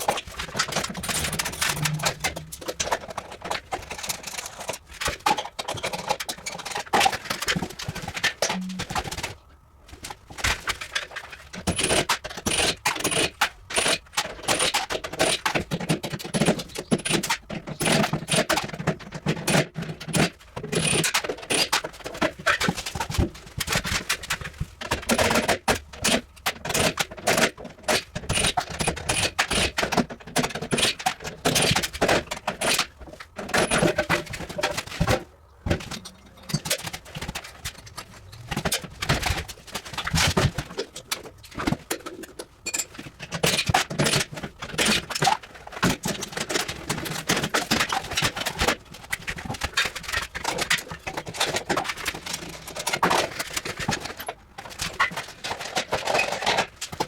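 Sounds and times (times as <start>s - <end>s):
tools clinking and scraping: 0.0s - 4.8s.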